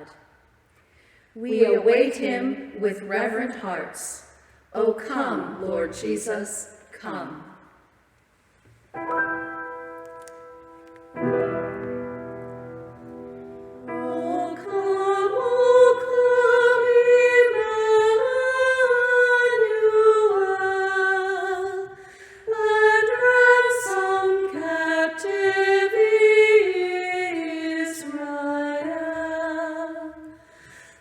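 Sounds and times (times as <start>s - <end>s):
singers breathing: 0.8s - 1.4s, 22.0s - 22.5s, 30.4s - 31.0s
female trio singing in harmony: 13.8s - 30.4s.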